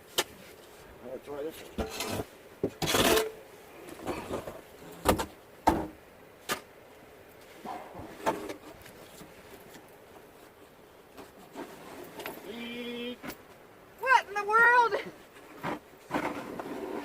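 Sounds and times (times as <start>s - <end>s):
snow shovel scraping snow: 15.4s - 17.0s.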